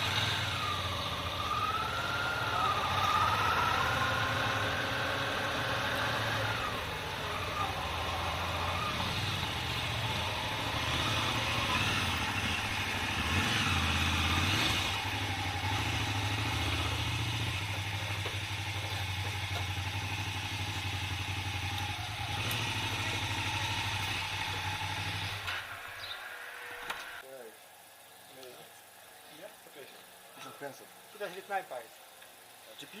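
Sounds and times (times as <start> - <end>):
motorcycle engine running: 0.0 - 25.4.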